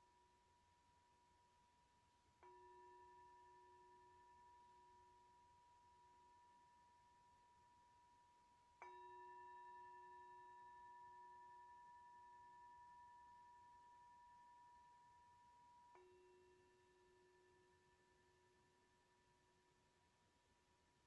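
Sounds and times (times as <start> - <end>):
singing bowl ringing: 2.4 - 19.8.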